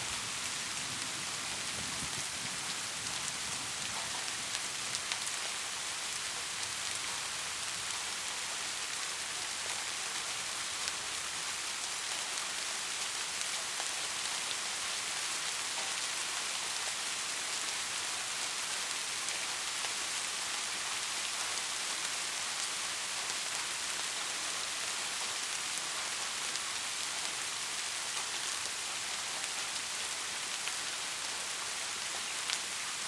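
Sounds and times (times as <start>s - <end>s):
steady rain: 0.0s - 33.0s.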